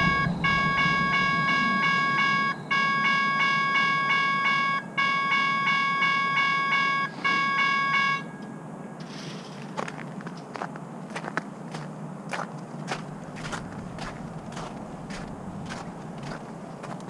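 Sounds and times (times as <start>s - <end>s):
multi-pitched warning tone blasts: 0.0s - 9.0s, 13.0s - 16.8s.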